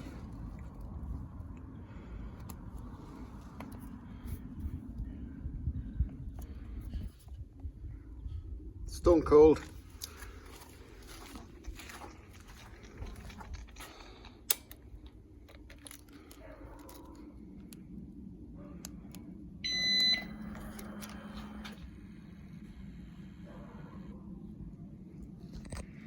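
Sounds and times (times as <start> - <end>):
low steady hum: 0.0 - 26.0
short electronic beep: 19.6 - 20.4.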